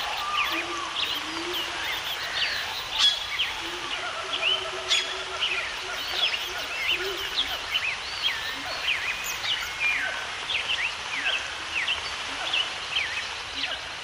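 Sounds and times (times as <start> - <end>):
birds chirping and whistling: 0.0 - 13.5
background hiss: 0.0 - 14.0.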